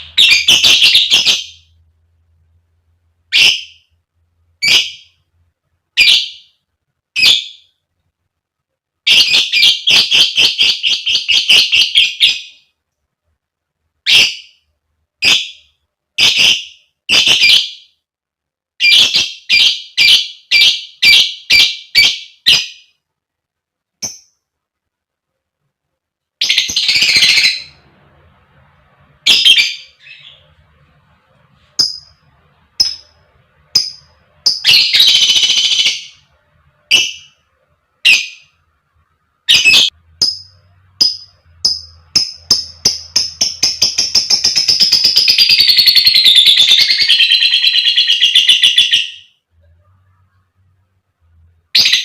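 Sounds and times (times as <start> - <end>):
lovebird squawking and chattering: 0.0 - 1.6, 33.7 - 36.2, 39.5 - 49.2.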